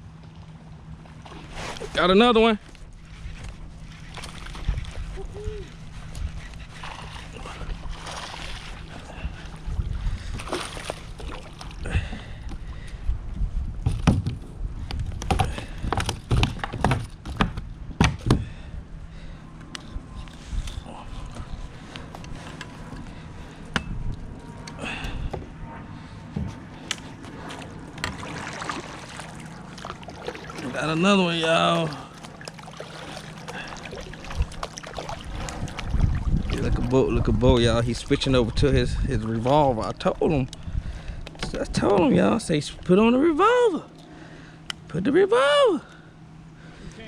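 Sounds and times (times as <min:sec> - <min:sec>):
low wind rumble on microphone: 0:00.0 - 0:31.4, 0:33.6 - 0:43.2
water splashing: 0:03.8 - 0:12.4, 0:27.1 - 0:40.2.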